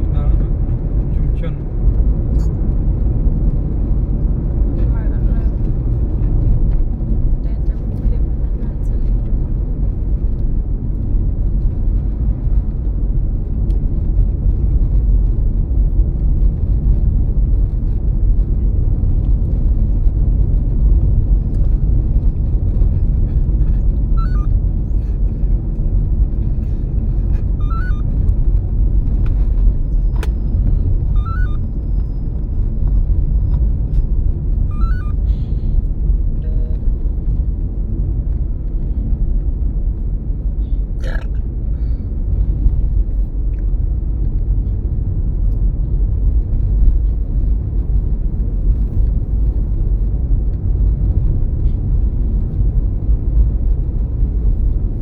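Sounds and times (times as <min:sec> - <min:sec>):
low road rumble in car cabin: 0:00.0 - 0:55.0
faint short chirp: 0:24.2 - 0:24.5, 0:27.6 - 0:28.0, 0:31.2 - 0:31.6, 0:34.7 - 0:35.2.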